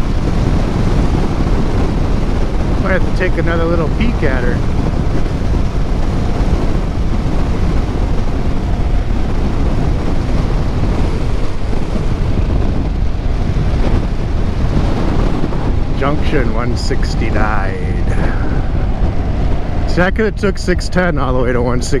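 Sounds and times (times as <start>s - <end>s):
motorcycle engine and road rumble: 0.0s - 22.0s
wind rushing over microphone: 0.0s - 22.0s.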